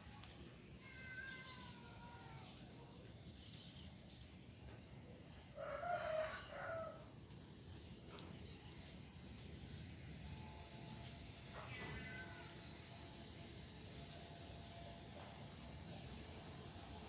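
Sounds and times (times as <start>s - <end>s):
faint bird chirps: 1.1s - 2.5s
rooster crowing: 5.5s - 7.2s.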